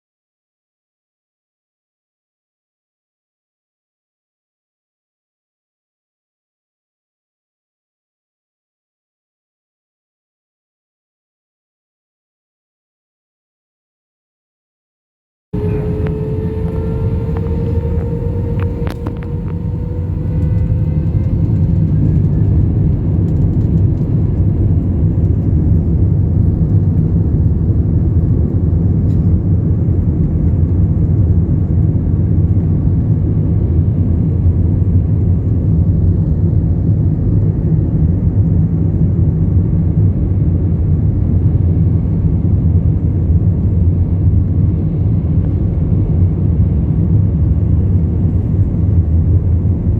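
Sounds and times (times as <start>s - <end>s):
jet engines whining: 15.6s - 25.5s
jet engine rumble: 15.6s - 49.9s.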